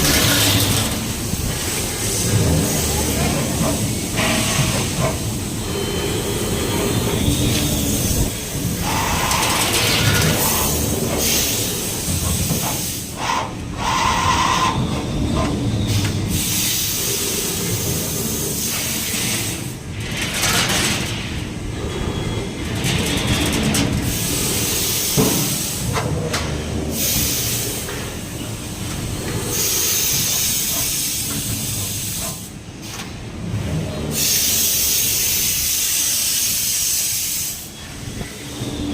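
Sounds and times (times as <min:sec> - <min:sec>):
folding machine rumble: 0:00.0 - 0:13.0, 0:14.6 - 0:34.9
machine hissing: 0:00.0 - 0:20.2, 0:21.2 - 0:26.0, 0:26.8 - 0:32.5, 0:34.0 - 0:38.9.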